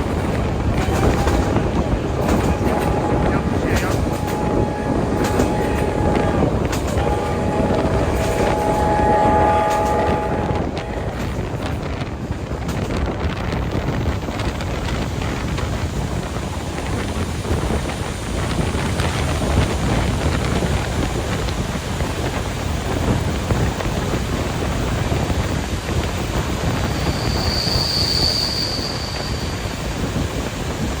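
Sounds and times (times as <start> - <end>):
train running rumble: 0.0 - 31.0
wind: 0.0 - 31.0
steam train whistle: 0.8 - 11.7, 26.9 - 29.7.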